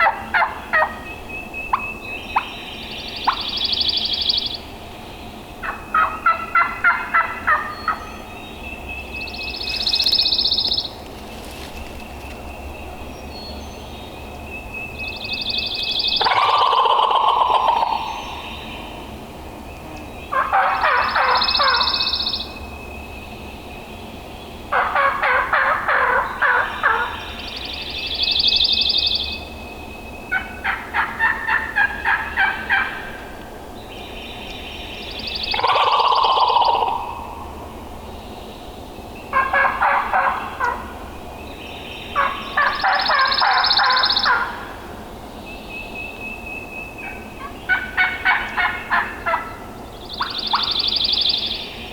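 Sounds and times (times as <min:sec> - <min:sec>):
turkey gobbling: 0:00.0 - 0:01.0, 0:05.6 - 0:08.0, 0:16.2 - 0:18.2, 0:20.3 - 0:22.0, 0:24.7 - 0:27.2, 0:30.3 - 0:33.1, 0:35.5 - 0:37.3, 0:39.3 - 0:40.9, 0:42.2 - 0:44.6, 0:47.0 - 0:49.6, 0:50.2 - 0:50.8
bird calls: 0:00.0 - 0:19.1, 0:19.7 - 0:44.8, 0:45.4 - 0:51.9.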